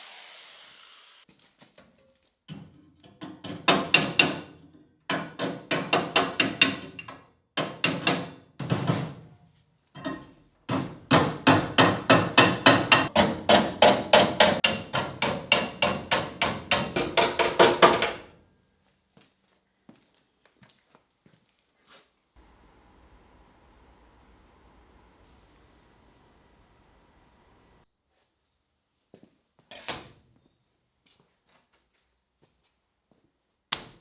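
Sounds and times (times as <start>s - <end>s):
hammer blows on sheet steel: 10.7s - 18.2s.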